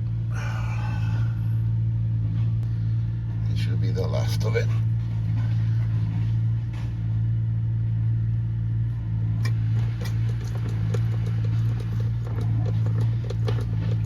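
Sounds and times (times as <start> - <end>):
low machine hum: 0.0 - 14.0
hand pump clicking and squeaking: 9.4 - 14.0.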